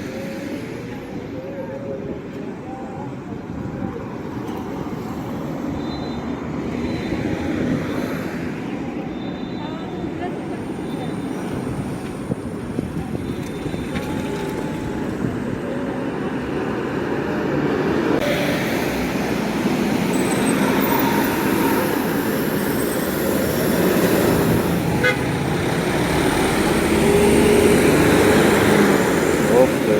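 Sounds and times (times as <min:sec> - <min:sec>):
roadside traffic: 0:00.0 - 0:29.9
heavy vehicle passing: 0:16.0 - 0:29.9.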